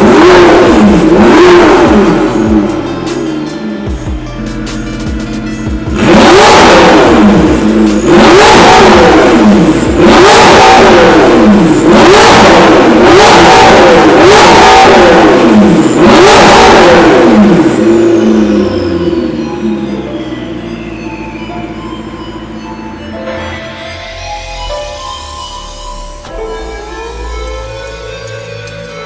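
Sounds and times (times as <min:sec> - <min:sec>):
sports car engine revving hard: 0:00.0 - 0:03.9, 0:05.0 - 0:22.6.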